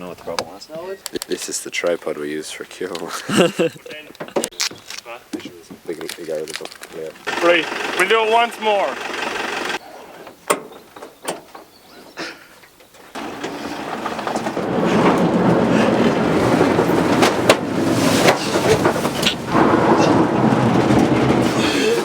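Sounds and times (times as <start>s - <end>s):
clicks and knocks: 13.2s - 22.0s
vehicle road and wind noise: 13.2s - 22.0s.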